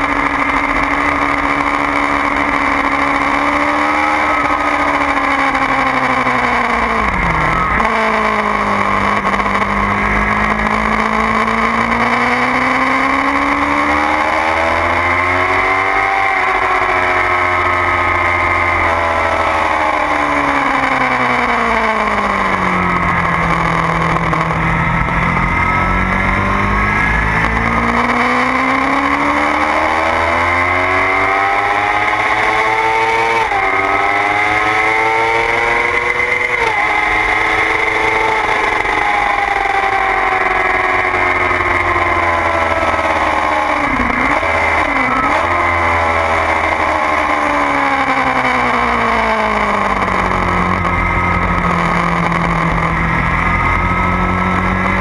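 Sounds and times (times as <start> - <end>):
gear upshifts: 0.0 - 55.0
motorcycle engine revving: 0.0 - 55.0.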